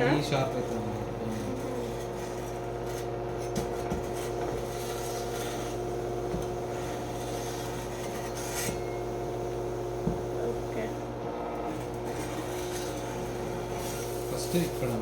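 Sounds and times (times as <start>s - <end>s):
knife sharpener motor humming: 0.0s - 15.0s
knife blade rasping: 7.1s - 8.9s.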